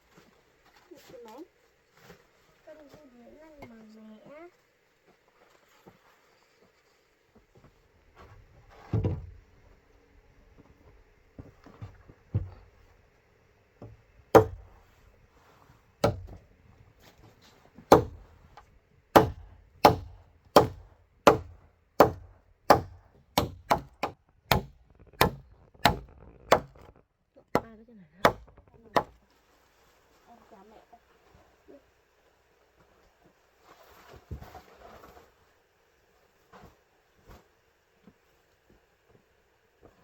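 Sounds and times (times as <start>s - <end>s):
blade chopping bamboo: 14.3s - 14.8s, 16.0s - 16.4s, 17.9s - 18.3s, 19.2s - 27.0s, 27.6s - 29.2s.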